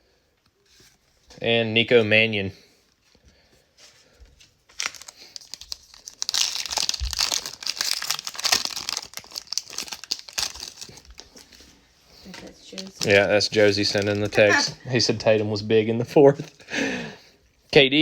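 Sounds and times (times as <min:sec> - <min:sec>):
plastic wrapper tearing and crinkling: 0:04.6 - 0:11.7, 0:12.7 - 0:14.5.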